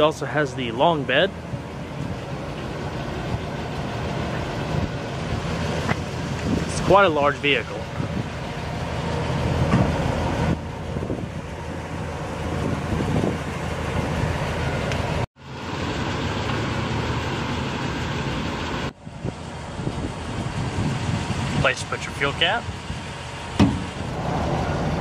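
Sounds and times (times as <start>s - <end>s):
vehicle rumble: 0.0s - 25.0s
wind noise: 4.6s - 7.0s, 7.8s - 14.4s, 19.0s - 25.0s.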